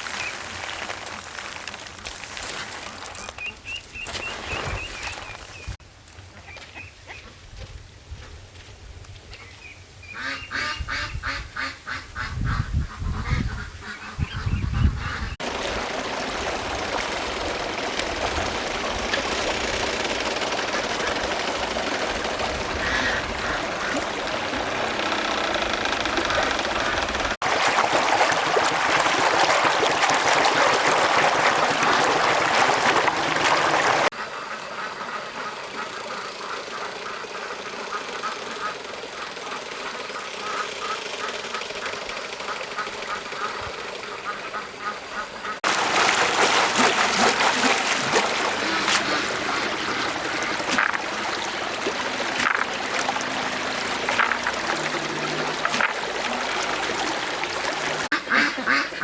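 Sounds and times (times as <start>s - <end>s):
ducks quacking: 10.1s - 27.4s, 31.0s - 59.0s.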